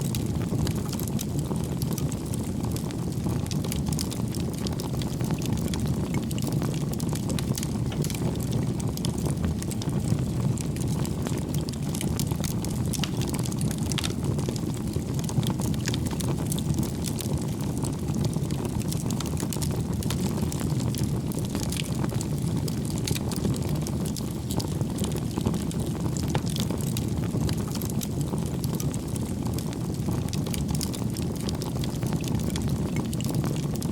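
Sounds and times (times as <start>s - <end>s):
firewood crackling and popping: 0.0s - 33.9s
low rumble of flames: 0.0s - 33.9s.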